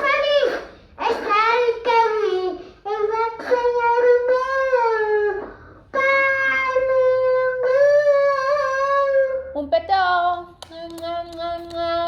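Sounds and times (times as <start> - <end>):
child singing slow melody: 0.0 - 9.5.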